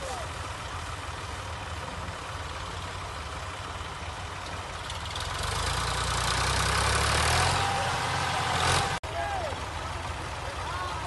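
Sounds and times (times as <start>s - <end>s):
heavy farm machine engine idling: 0.0s - 5.2s, 9.1s - 11.0s.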